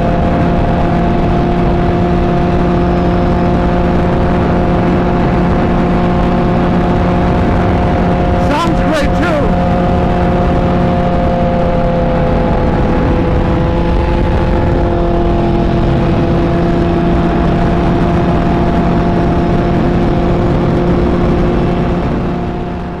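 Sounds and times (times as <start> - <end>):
motorcycle engine cruising: 0.0 - 23.0.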